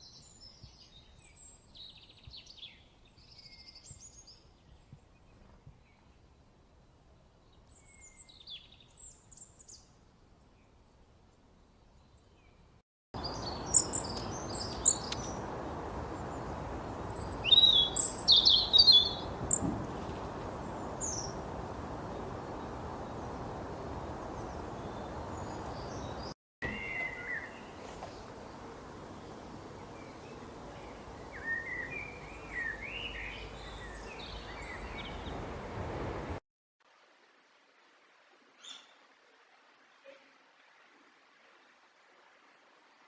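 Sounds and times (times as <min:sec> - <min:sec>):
low background hiss: 0:00.0 - 0:43.0
small birds chirping and trilling: 0:11.8 - 0:35.7.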